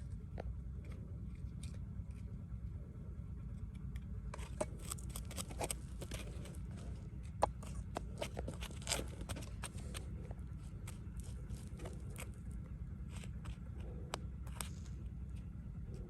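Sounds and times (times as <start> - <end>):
steady low rumble: 0.0 - 16.0
scrapes: 4.3 - 16.0.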